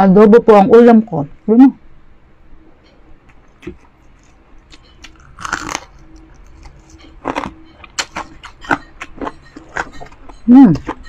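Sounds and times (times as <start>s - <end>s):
chewing crispy fried pork: 3.2s - 11.0s
loud crunches of crispy skin: 5.0s - 6.0s.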